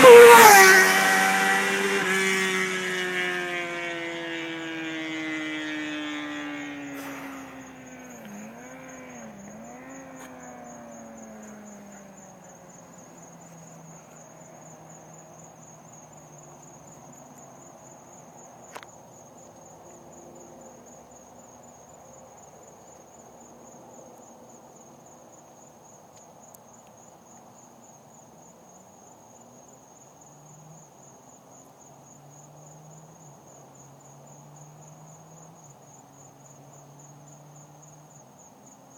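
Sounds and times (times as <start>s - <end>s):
motorcycle engine pulling away: 0.0s - 15.4s
high insect trill: 0.0s - 38.9s.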